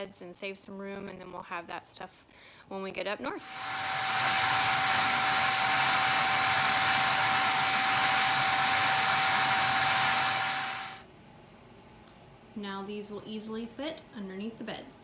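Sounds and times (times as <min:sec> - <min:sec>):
vacuum cleaner running: 0:03.4 - 0:11.1.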